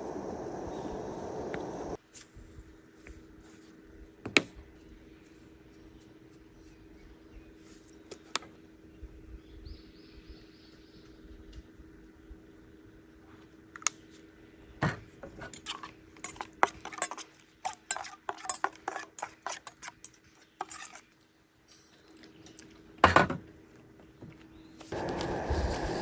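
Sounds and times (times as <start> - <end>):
faint steady hum: 0.0 - 2.0, 24.9 - 26.0.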